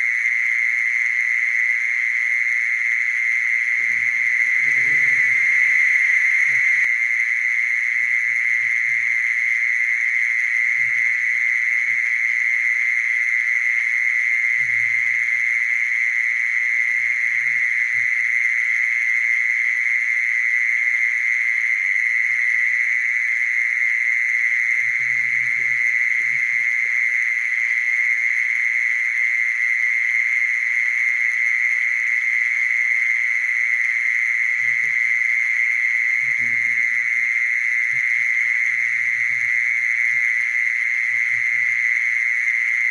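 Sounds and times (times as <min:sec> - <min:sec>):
mole cricket trilling: 0:00.0 - 0:42.9.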